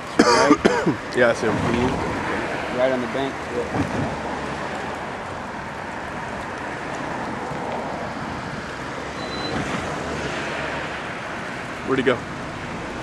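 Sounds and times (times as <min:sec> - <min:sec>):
steady rushing noise: 0:00.0 - 0:13.0
brief high tone: 0:09.2 - 0:09.6.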